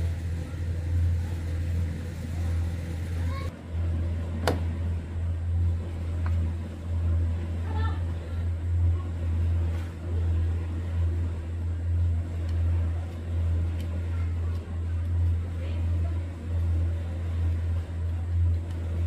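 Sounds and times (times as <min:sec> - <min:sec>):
low mechanical motor hum: 0:00.0 - 0:19.0.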